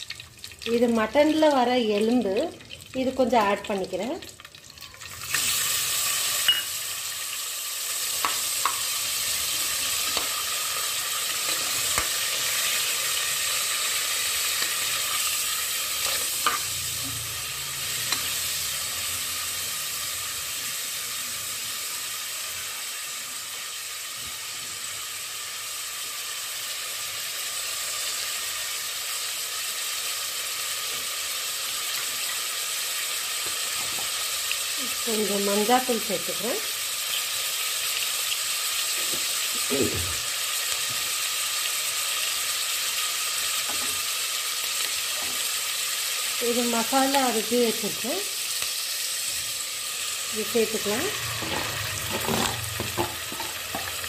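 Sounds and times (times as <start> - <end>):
frying hiss: 0.0 - 54.0
steel spoon clinking on pot: 6.4 - 6.8.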